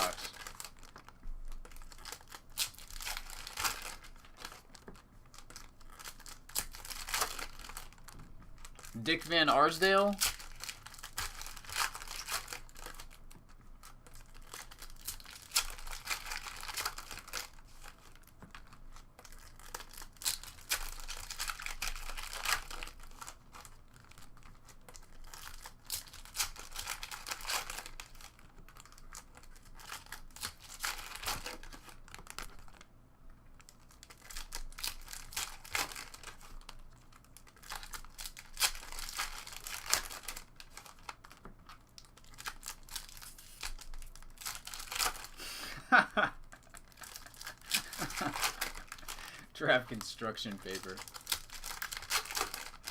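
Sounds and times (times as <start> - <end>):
plastic wrappers crinkling: 0.0 - 32.9, 33.5 - 52.9.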